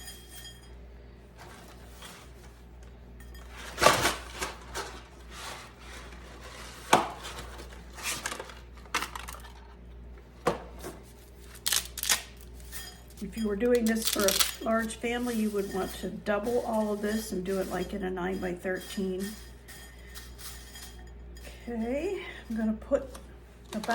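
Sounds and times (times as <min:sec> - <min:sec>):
dry spaghetti snapping: 0:11.5 - 0:12.5.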